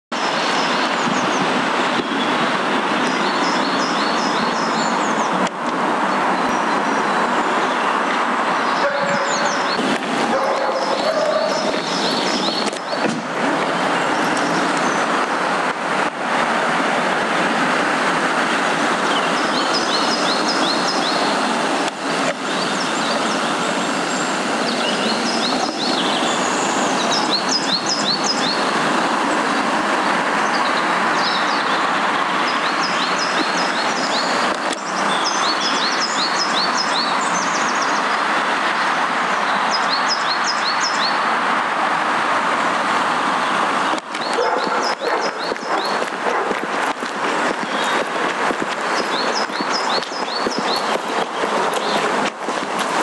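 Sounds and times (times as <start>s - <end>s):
loud steady rushing noise: 0.2s - 53.0s
songbirds singing: 3.0s - 5.4s, 6.1s - 15.1s, 19.0s - 21.5s, 22.4s - 28.8s, 30.3s - 41.2s, 43.4s - 46.2s, 47.4s - 52.2s.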